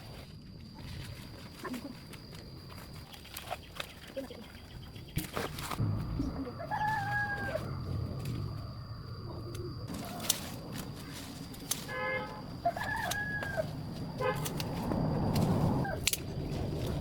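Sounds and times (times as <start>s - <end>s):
rooster crowing: 6.5s - 7.9s, 12.7s - 13.7s.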